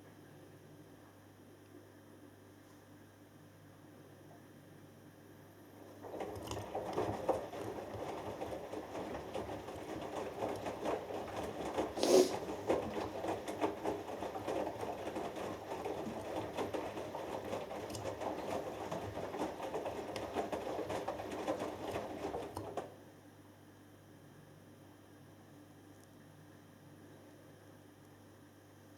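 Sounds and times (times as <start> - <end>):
washing machine drum tumbling: 5.9 - 23.0.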